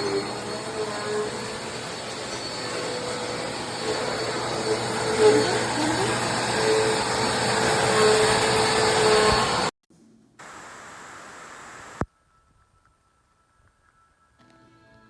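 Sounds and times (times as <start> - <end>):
vacuum cleaner running: 0.0 - 9.7.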